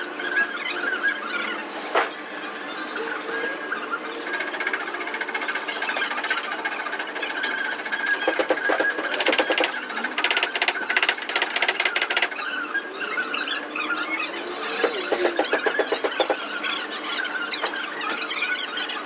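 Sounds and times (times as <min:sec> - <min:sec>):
power tool hammering: 0:05.3 - 0:12.4, 0:14.4 - 0:16.5.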